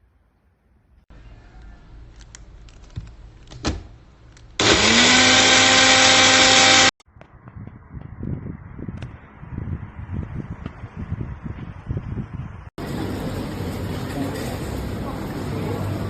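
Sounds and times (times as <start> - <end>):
blender motor whining: 4.6 - 7.0.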